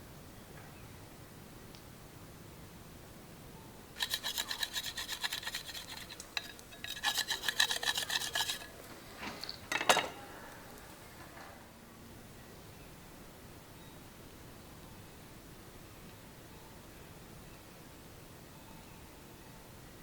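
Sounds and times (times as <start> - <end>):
fast rasping strokes: 4.0 - 8.8.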